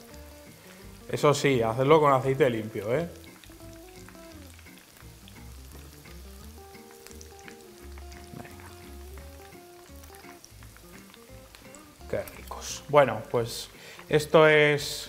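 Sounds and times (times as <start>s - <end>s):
onion rings sizzling in oil: 0.0s - 15.0s
soft background music: 0.0s - 15.0s.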